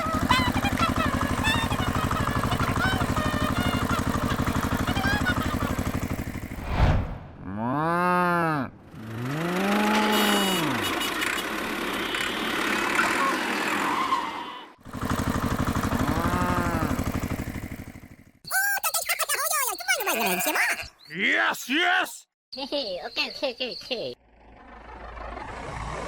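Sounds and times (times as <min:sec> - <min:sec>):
mini tractor engine idling: 0:00.0 - 0:06.6, 0:08.9 - 0:14.1, 0:14.8 - 0:20.5.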